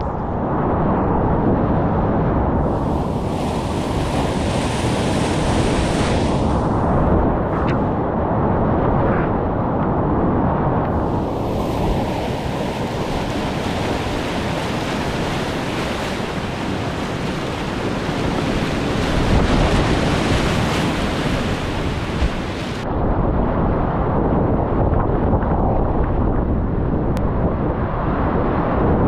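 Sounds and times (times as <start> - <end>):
microphone buffeting: 2.6 - 8.1, 10.9 - 22.8
splashing hiss: 2.7 - 6.6.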